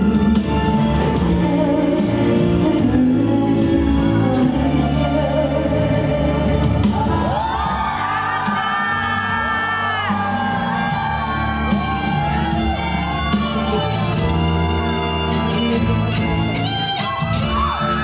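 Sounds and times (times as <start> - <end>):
band accompaniment with bass: 0.0 - 18.0
person singing ballad live: 0.0 - 18.0
audience shouting: 7.3 - 15.2, 16.6 - 18.0.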